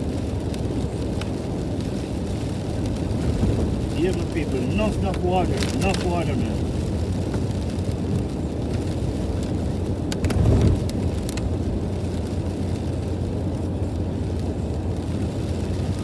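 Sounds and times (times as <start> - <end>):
car driving on wet road: 0.0 - 16.0.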